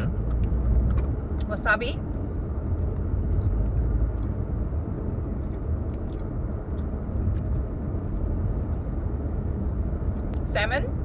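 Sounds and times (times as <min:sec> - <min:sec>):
car rumbling: 0:00.0 - 0:11.0.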